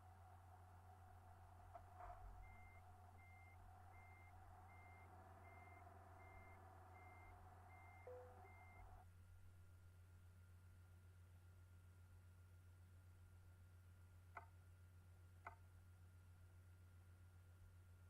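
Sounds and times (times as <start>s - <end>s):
low steady hum: 0.0s - 18.0s
truck reversing alarm beeping: 0.2s - 9.0s.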